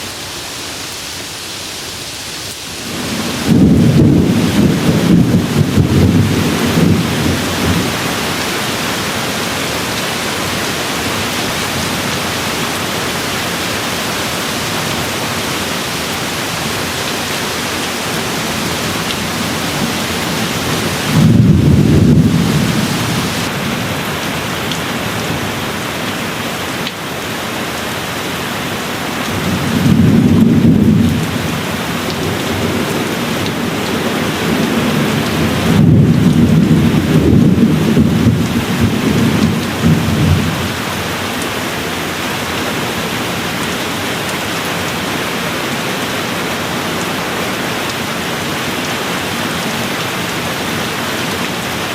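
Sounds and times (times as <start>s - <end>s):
steady rain falling: 0.0s - 51.9s
distant thunder rolling: 2.9s - 8.0s, 16.1s - 23.5s.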